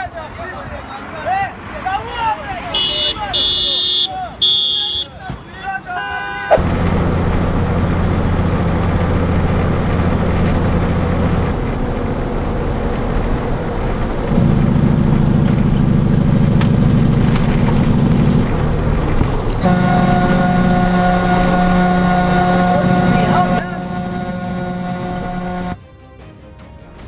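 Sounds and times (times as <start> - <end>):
road noise: 0.0 - 27.0
vehicle engine: 6.4 - 25.8.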